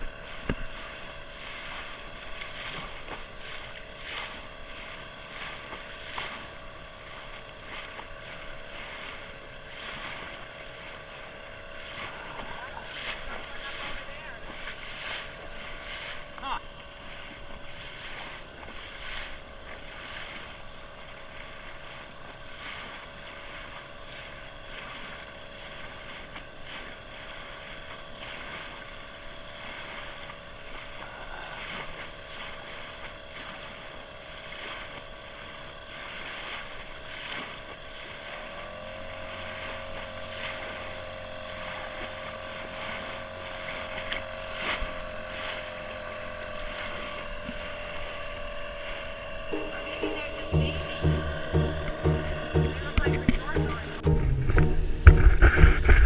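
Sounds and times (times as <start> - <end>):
wind: 0.0 - 52.1
boat motor running: 0.0 - 56.0
water noise: 0.0 - 56.0.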